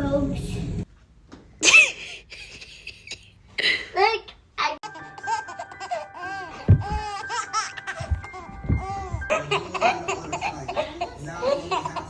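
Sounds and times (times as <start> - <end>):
baby giggling: 4.8 - 12.0
light background music: 4.8 - 12.0
voices: 9.3 - 12.0.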